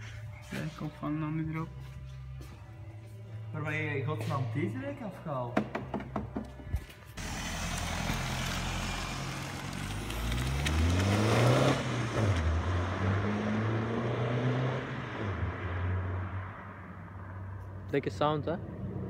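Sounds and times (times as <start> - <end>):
diesel car engine revving: 7.2 - 16.6.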